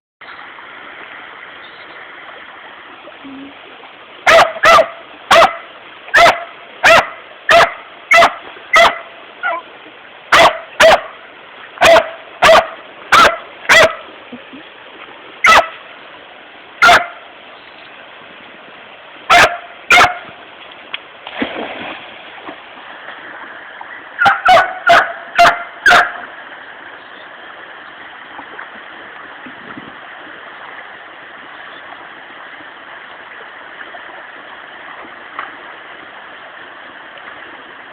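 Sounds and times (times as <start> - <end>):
rushing river water: 0.2 - 37.9
dog barking: 4.3 - 9.6, 10.3 - 11.2, 11.8 - 14.0, 15.4 - 15.8, 16.8 - 17.2, 19.3 - 20.3, 24.2 - 26.2.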